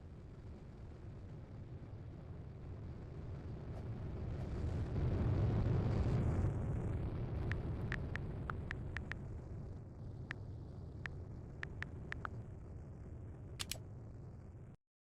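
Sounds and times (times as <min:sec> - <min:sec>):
sharp ticks: 0:07.5 - 0:09.2, 0:11.0 - 0:12.3, 0:13.6 - 0:13.8.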